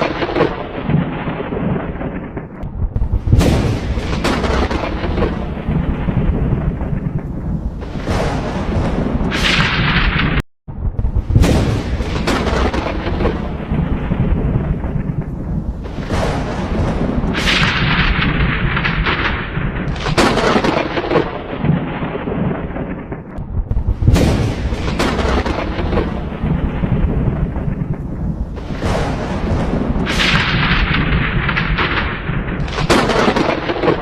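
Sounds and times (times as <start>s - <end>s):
rumbling thunder: 0.0s - 34.0s
thunder cracks: 0.0s - 34.0s.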